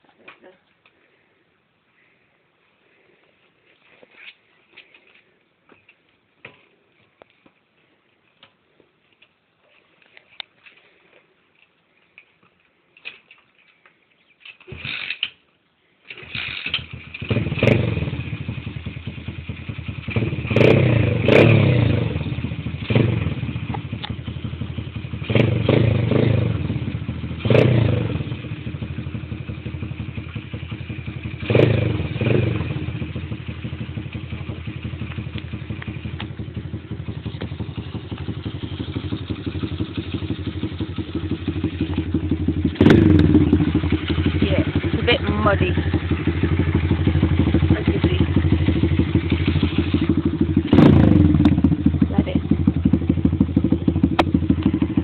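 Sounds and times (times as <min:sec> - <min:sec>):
pit bike engine starting: 0:14.5 - 0:15.4, 0:16.0 - 0:55.0
engine idling: 0:28.3 - 0:55.0.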